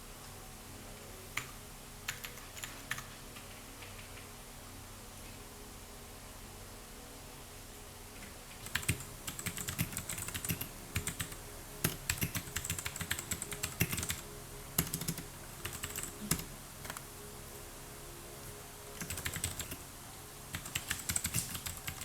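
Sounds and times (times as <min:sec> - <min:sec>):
computer keyboard typing: 0:02.1 - 0:04.2, 0:08.6 - 0:14.2, 0:14.8 - 0:17.0, 0:19.0 - 0:19.8, 0:20.5 - 0:22.0.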